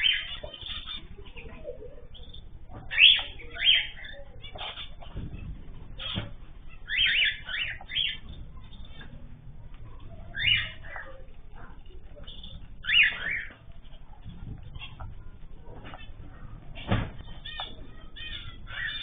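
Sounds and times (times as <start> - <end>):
cage birds calling: 0.0 - 19.0
low steady background noise: 0.0 - 19.0.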